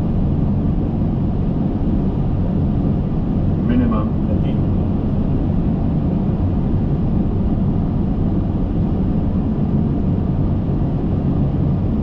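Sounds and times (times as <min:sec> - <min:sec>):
cockpit airflow and engine rumble: 0:00.0 - 0:12.0.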